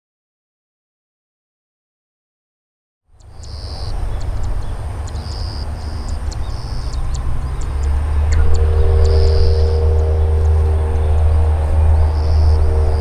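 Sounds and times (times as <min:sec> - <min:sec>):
jet engines rumbling: 0:03.2 - 0:13.0
steady hum: 0:03.2 - 0:13.0.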